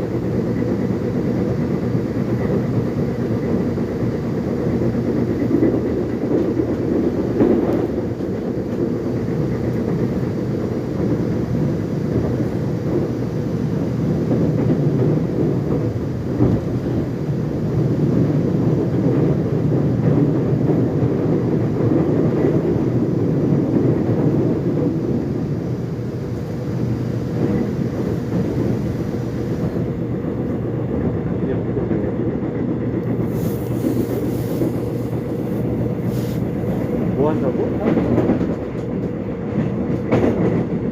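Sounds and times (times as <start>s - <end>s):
subway train wheels rumbling: 0.0s - 40.9s
faint clack from rails: 14.3s - 17.0s, 36.1s - 40.9s.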